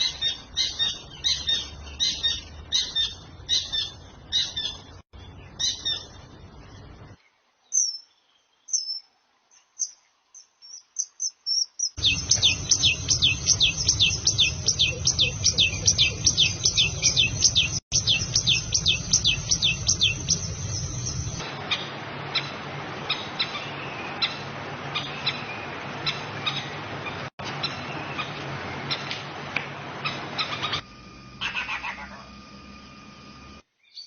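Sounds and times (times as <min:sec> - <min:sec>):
high bird chirps: 0:09.8 - 0:21.4
descending whistled bird notes: 0:12.0 - 0:21.4.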